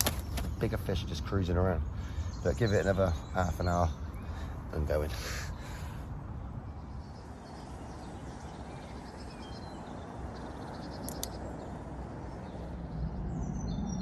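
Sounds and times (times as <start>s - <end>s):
low background rumble: 0.0s - 14.0s
small birds chirping: 0.0s - 14.0s
sharp click: 11.0s - 11.4s.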